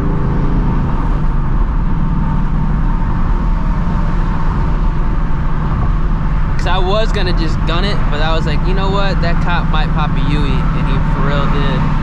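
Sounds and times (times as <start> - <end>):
car engine running steadily: 0.0 - 12.0.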